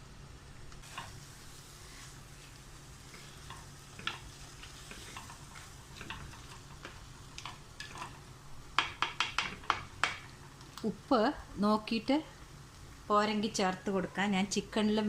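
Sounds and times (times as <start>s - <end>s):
chicken sizzling in oil: 0.0s - 13.5s
spoon scraping and tapping pot: 3.4s - 8.2s, 8.8s - 10.3s.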